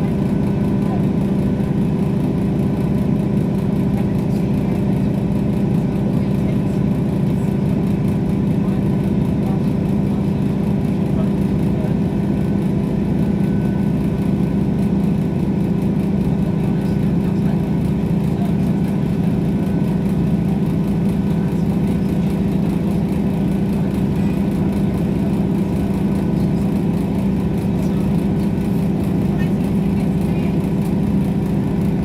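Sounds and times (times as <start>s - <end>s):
diesel engine drone: 0.0s - 32.0s
wheel and rail rumble: 0.0s - 32.0s.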